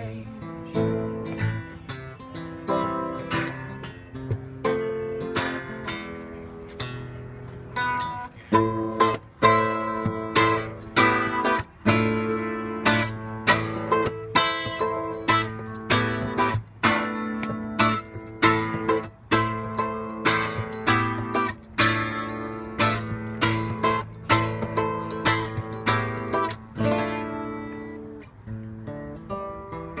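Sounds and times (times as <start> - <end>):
acoustic guitar strumming: 0.0 - 30.0.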